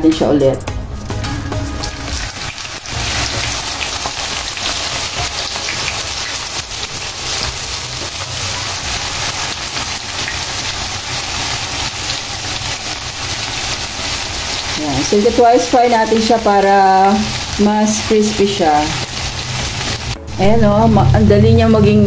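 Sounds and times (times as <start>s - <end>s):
tofu deep-frying in hot oil: 1.8s - 20.2s.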